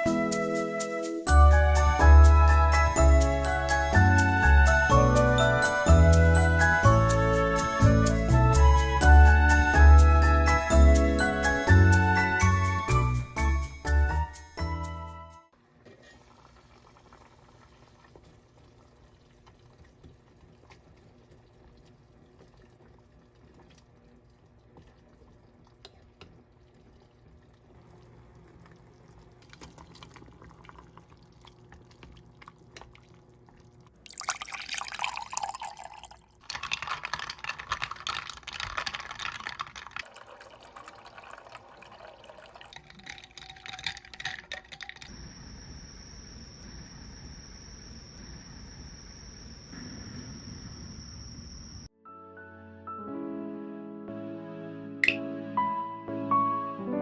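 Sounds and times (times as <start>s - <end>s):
faint room hum: 15.5s - 51.9s
water running and splashing: 34.1s - 45.0s.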